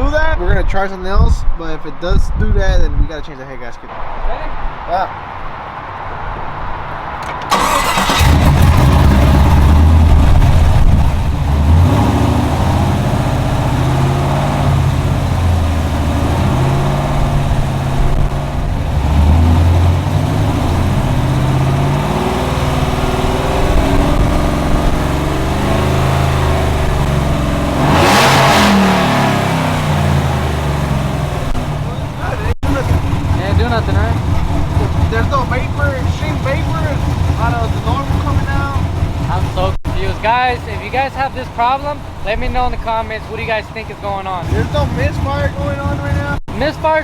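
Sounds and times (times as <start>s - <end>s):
truck engine running: 7.0s - 47.0s
truck engine cranking: 7.1s - 42.4s.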